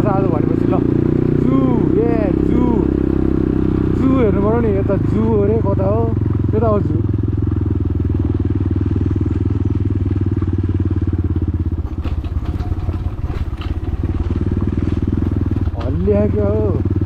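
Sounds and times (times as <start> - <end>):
motorcycle engine running: 0.0 - 17.0
knocks and rattles: 11.5 - 16.4.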